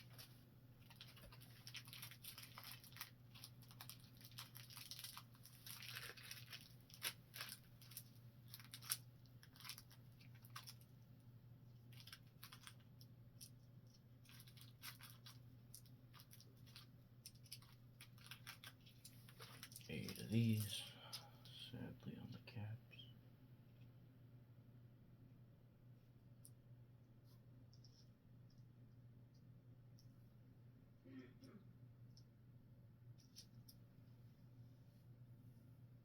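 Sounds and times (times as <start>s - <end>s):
packaging rustling and tearing: 0.0s - 10.8s, 11.9s - 12.8s, 14.2s - 20.7s
low steady hum: 0.0s - 36.0s.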